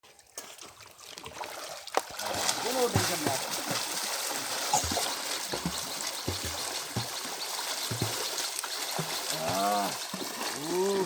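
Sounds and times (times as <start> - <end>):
water sloshing and trickling: 0.0 - 11.0
soft low thumps: 4.6 - 8.4.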